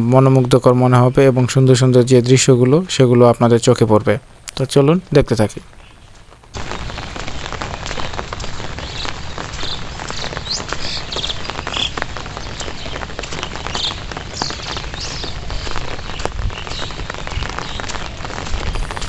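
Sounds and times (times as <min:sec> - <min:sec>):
raindrops ticking: 0:00.0 - 0:19.0
heavy rain: 0:05.6 - 0:19.0.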